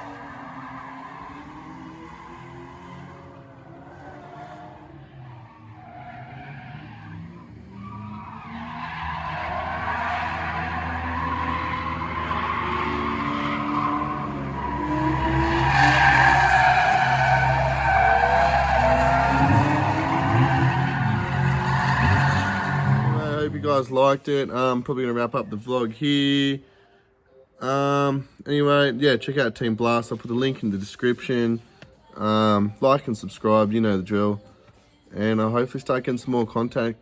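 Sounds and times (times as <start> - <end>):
car engines revving: 0.0 - 24.0
tyres squealing: 5.4 - 23.6.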